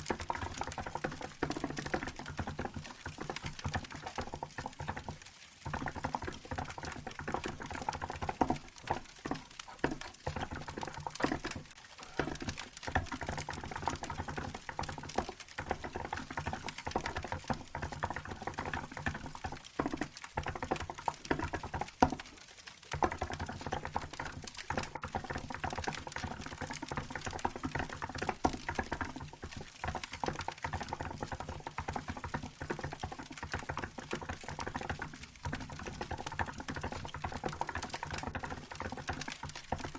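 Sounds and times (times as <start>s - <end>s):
fast mechanical keyboard typing: 0.0s - 22.4s
wood fire crackling: 0.1s - 23.0s.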